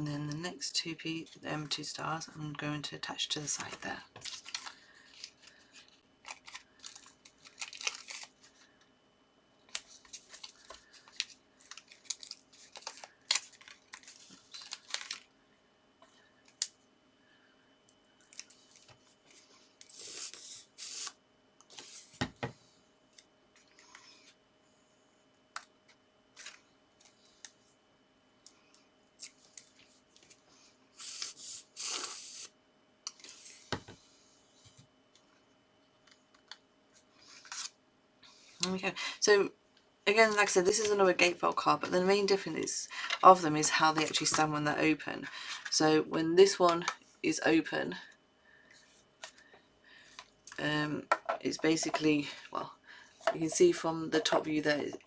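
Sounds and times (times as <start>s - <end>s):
paper rustling: 9.8s - 15.2s
paper tearing-like rustles: 19.8s - 22.2s, 31.0s - 32.5s.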